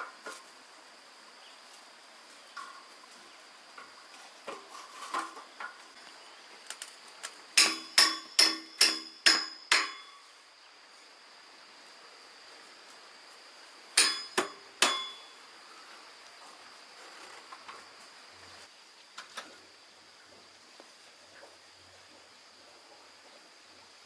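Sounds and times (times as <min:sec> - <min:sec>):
hammer striking iron bars: 0:07.6 - 0:10.2, 0:14.0 - 0:15.3.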